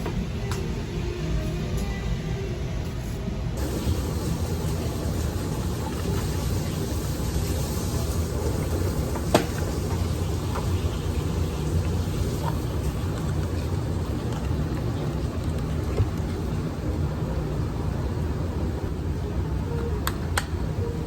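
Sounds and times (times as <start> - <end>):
wood fire burning: 3.6 - 16.8.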